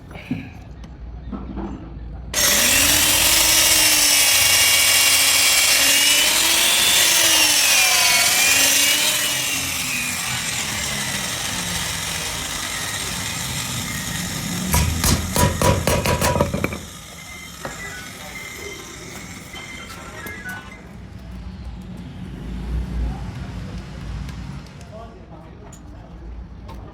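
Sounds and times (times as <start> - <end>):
electric grinder grinding steel: 2.4 - 20.5.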